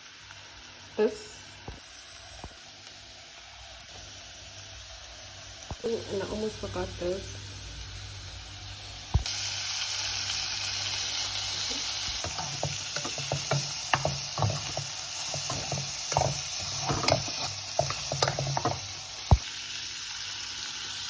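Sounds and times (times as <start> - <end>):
stew sizzling in a pot: 0.0 - 21.0
spoon stirring against a pot: 12.2 - 19.4.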